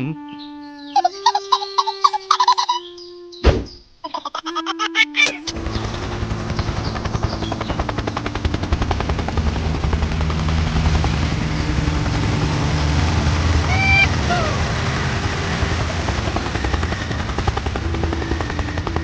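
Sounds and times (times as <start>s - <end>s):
small engine running: 5.4s - 19.0s.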